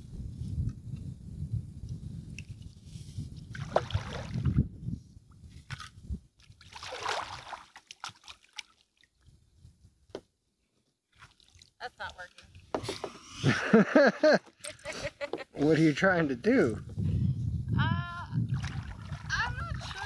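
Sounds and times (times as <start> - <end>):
water sloshing around kayak: 3.5 - 4.5, 5.5 - 9.1, 11.1 - 13.2, 18.5 - 20.0.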